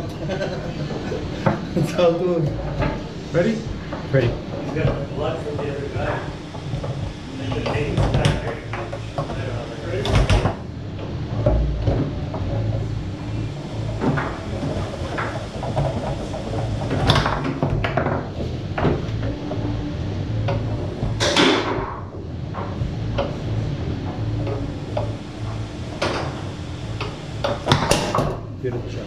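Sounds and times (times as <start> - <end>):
steady low hum: 0.0 - 29.0
foosball ball clacking: 11.4 - 28.5.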